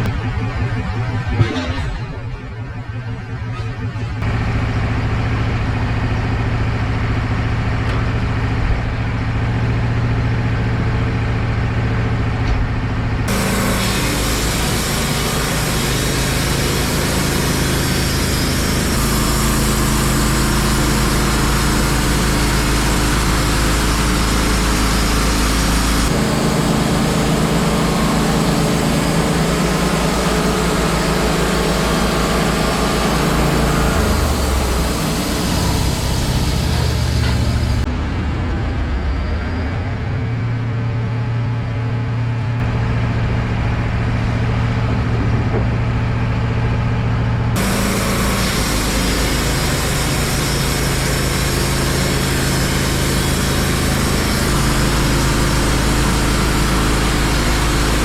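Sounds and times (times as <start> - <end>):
band sawmill engine running: 0.0 - 58.0
steady hiss of sawing: 13.3 - 19.2, 47.6 - 58.0.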